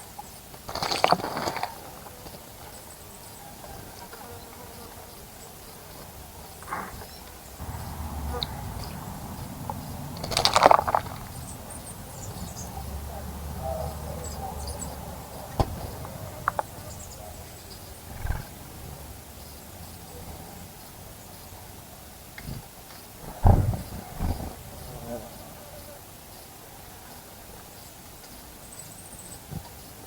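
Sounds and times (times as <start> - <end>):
birds splashing and fluttering: 0.4 - 4.0, 7.0 - 18.8, 22.4 - 24.9.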